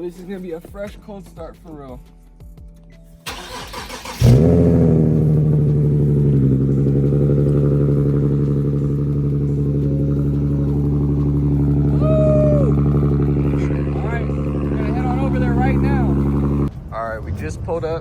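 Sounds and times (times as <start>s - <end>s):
car starter cranking: 3.3s - 12.0s, 12.6s - 16.7s
car engine idling: 3.3s - 16.8s.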